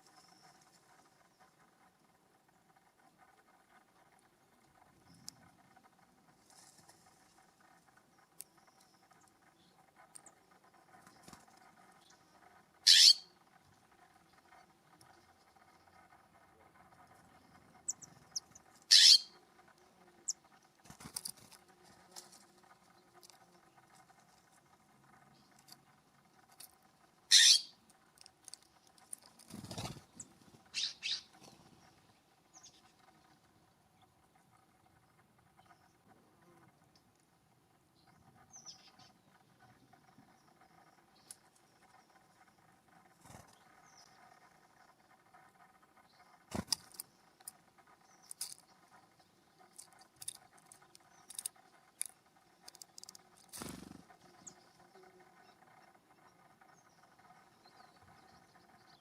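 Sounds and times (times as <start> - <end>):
sharp bird calls: 0.0 - 21.5, 22.6 - 36.6
rustle: 0.0 - 37.4, 38.2 - 59.0
small ticks: 0.0 - 59.0.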